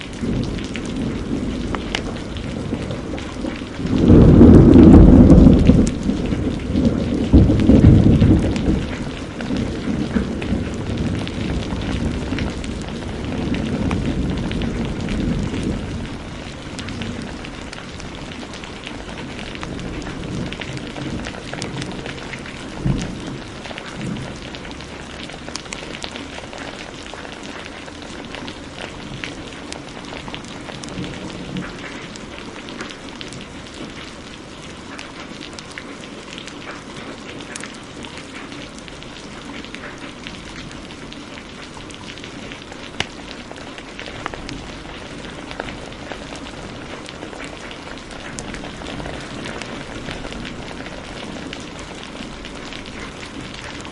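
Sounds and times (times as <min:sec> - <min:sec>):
low thunder rumble: 0:00.0 - 0:27.6, 0:39.0 - 0:53.9
heavy rain: 0:00.0 - 0:53.9
wood fire crackling: 0:00.0 - 0:53.9.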